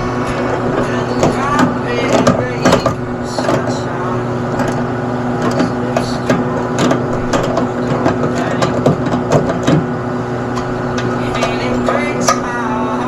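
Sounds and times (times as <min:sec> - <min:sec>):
electrical machine hum: 0:00.0 - 0:13.0
clicks and knocks: 0:00.2 - 0:09.9.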